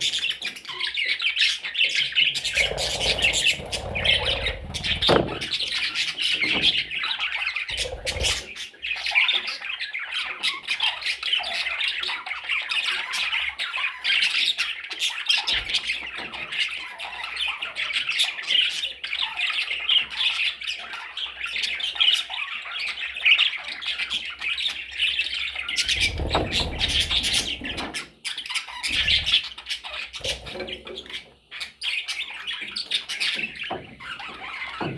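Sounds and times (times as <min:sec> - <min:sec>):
parrots chattering and squawking: 0:00.2 - 0:18.1, 0:25.2 - 0:34.9.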